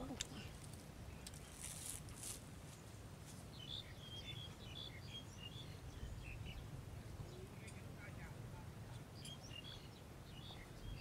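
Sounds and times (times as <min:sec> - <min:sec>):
rustling hiss: 0:00.0 - 0:04.0
small birds chirping: 0:00.0 - 0:11.0.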